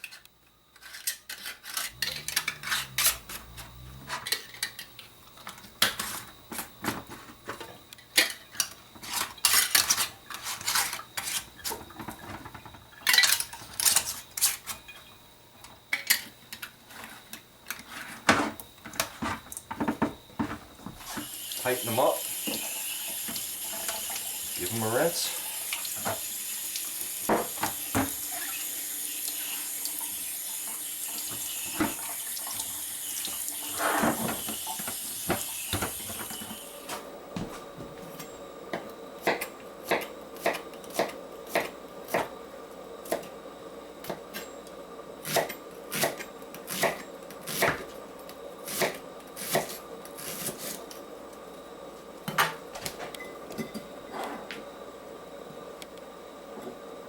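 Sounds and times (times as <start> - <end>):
kitchen tap running: 21.0 - 36.8.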